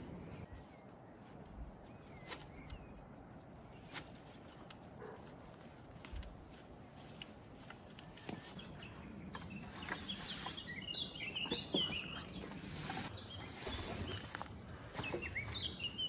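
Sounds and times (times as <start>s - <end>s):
bird chirping: 0.2s - 4.2s, 8.2s - 16.0s.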